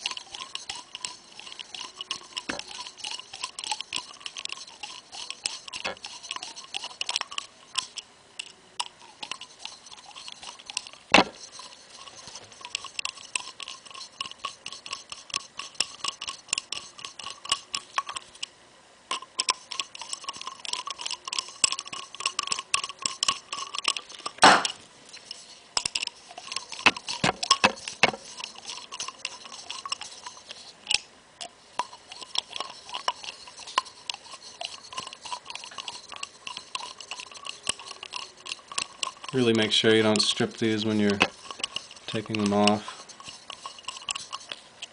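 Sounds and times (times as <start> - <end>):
ratchet wrench clicking: 0.0 - 8.5, 31.8 - 44.6.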